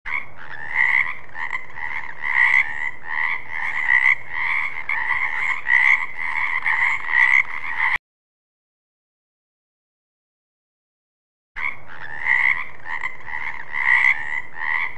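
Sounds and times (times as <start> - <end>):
frog croaking: 0.1 - 8.0, 11.6 - 14.9.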